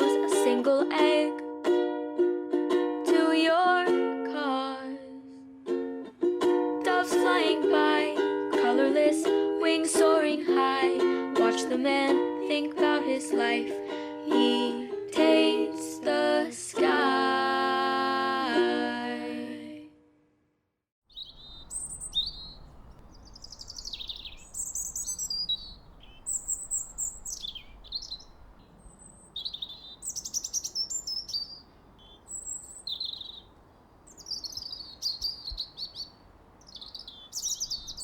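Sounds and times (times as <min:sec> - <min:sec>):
songbirds chirping and trilling: 0:21.1 - 0:38.0.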